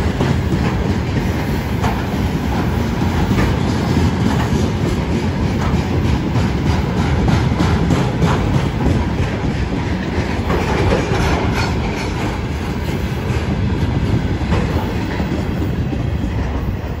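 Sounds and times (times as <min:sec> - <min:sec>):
wheels clattering over rail joints: 0:00.0 - 0:16.9
freight train rumbling past: 0:00.0 - 0:17.0.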